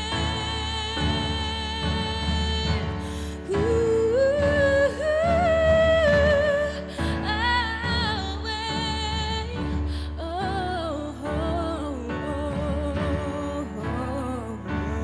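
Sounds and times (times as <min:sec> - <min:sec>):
instrumental accompaniment: 0:00.0 - 0:15.0
woman singing with vibrato: 0:00.0 - 0:15.0.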